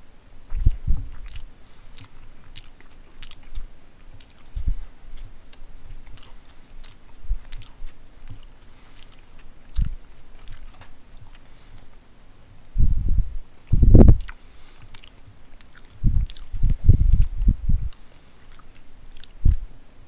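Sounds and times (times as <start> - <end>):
person chewing food: 0.4 - 12.7, 13.6 - 19.7.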